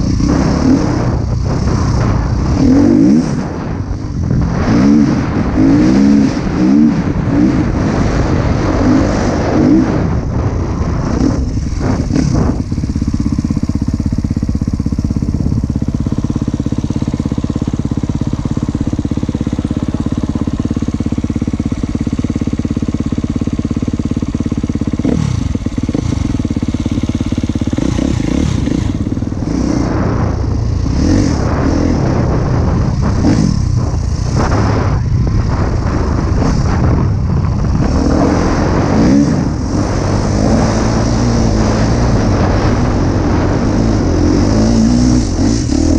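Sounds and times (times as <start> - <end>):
motocross bike engine revving: 0.0 - 45.9.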